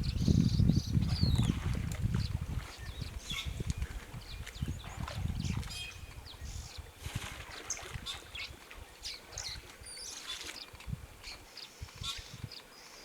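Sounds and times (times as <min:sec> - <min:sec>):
birds chirping and calling: 0:02.2 - 0:03.6.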